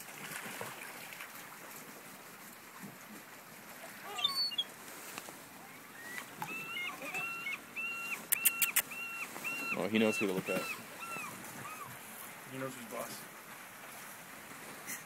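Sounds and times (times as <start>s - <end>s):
seagulls calling: 4.1s - 4.7s, 5.6s - 12.1s
sharp clicks: 8.3s - 8.9s.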